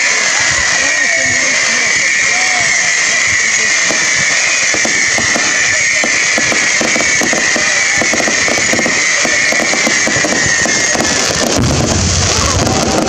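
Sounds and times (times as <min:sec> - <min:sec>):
fireworks crackling: 0:00.0 - 0:13.0
high falling whistle: 0:00.0 - 0:13.0
low rumble: 0:11.6 - 0:13.0.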